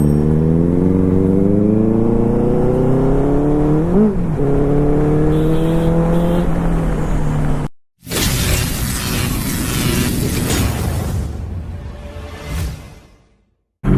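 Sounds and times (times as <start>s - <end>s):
motorcycle engine revving: 0.0s - 7.7s
music: 11.7s - 13.7s.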